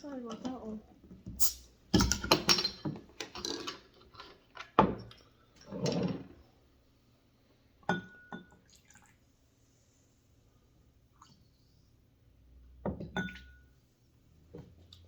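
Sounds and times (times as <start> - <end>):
glasses knocking and clinking: 2.0 - 3.0, 7.9 - 8.5.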